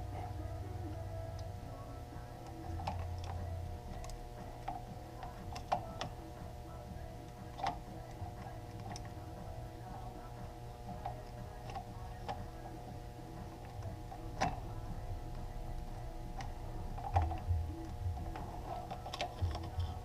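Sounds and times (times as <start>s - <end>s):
steady background tones: 0.0s - 20.0s
small plastic parts clicking: 18.2s - 20.0s.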